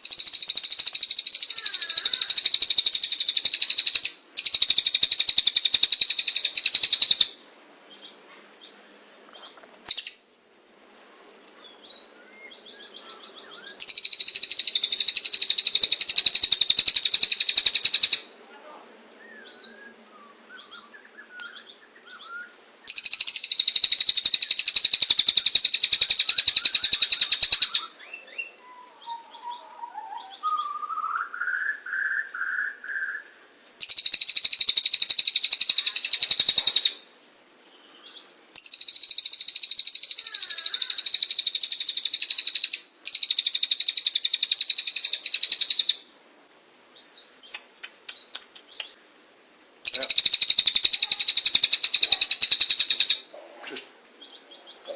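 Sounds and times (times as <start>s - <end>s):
songbirds singing rapid trills: 0.0s - 10.3s, 11.6s - 18.3s, 19.2s - 33.2s, 33.8s - 46.0s, 47.0s - 49.0s, 49.8s - 53.4s, 54.2s - 54.9s
soft bird chirps: 19.2s - 37.0s, 37.6s - 46.0s, 47.0s - 49.0s, 49.8s - 53.3s.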